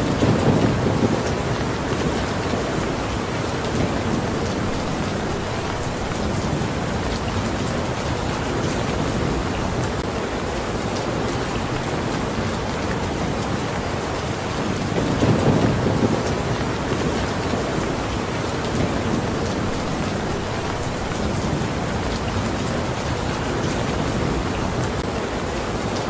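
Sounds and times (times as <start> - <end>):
dense rain falling: 0.0 - 26.0.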